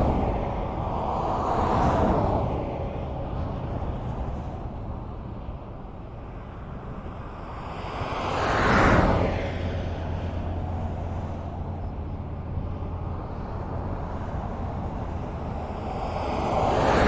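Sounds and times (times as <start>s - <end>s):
low road rumble: 0.0s - 17.0s.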